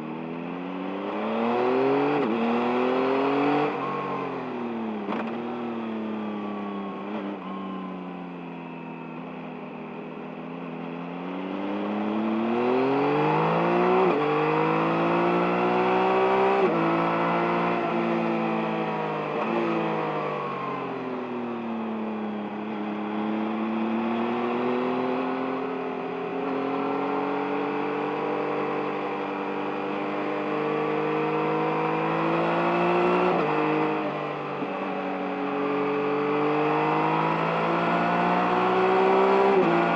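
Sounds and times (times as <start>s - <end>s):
motorcycle engine revving: 10.5s - 20.0s, 22.2s - 39.9s.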